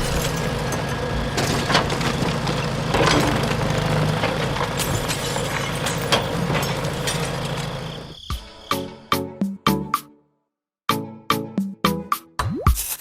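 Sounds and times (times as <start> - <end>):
clattering and knocks: 0.0 - 7.8.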